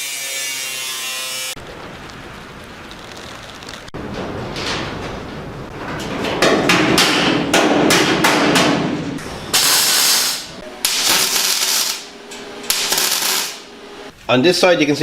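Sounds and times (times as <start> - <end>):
hammer striking sheet metal: 6.2 - 13.8
harsh bursts of noise: 9.5 - 14.0.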